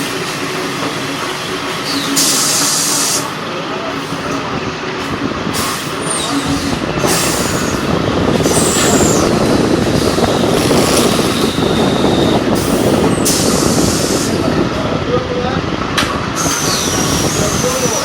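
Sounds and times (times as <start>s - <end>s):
ironing press machine running: 0.0s - 14.5s
steam hissing releases: 1.7s - 4.4s, 5.0s - 9.3s, 9.9s - 14.5s, 16.4s - 18.0s.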